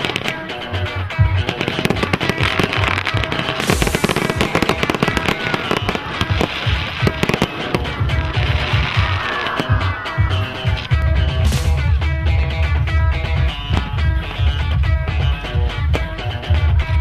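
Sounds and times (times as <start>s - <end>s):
fireworks crackling: 0.0s - 16.2s
music with bass beat: 0.0s - 17.0s
hissing burst: 3.3s - 12.2s.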